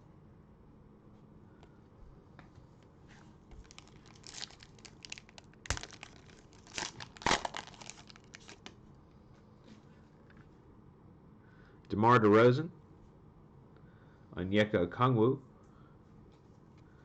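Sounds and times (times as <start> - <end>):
cellophane wrapper crinkling: 3.5 - 8.8.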